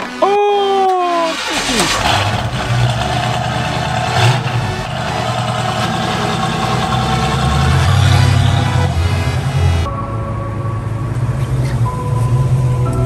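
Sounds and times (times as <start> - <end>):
car engine idling: 1.3 - 9.9.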